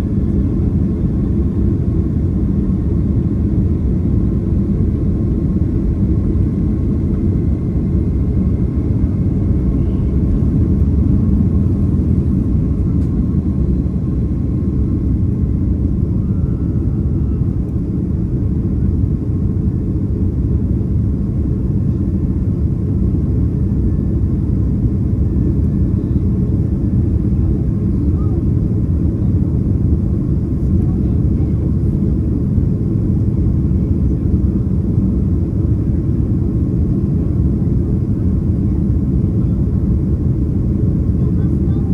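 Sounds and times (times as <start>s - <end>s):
airliner cabin engine roar: 0.0s - 41.9s.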